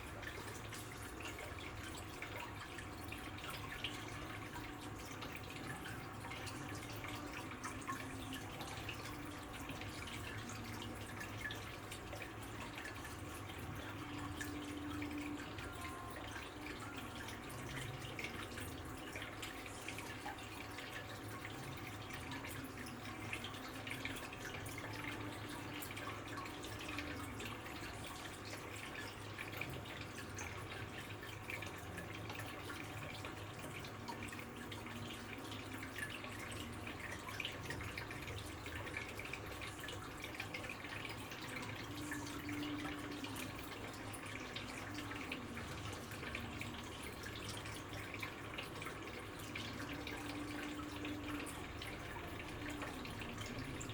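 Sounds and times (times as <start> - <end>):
water trickling and dripping: 0.0 - 53.9.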